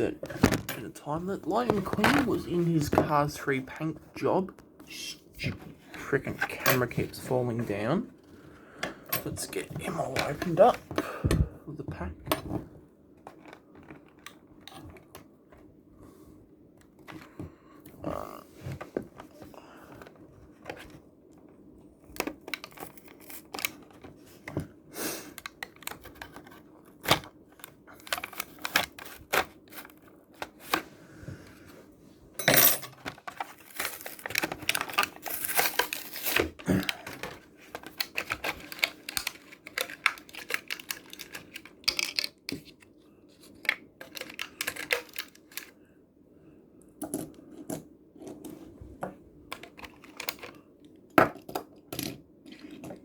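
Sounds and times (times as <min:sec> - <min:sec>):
blister pack tearing and crinkling: 0:33.5 - 0:37.0.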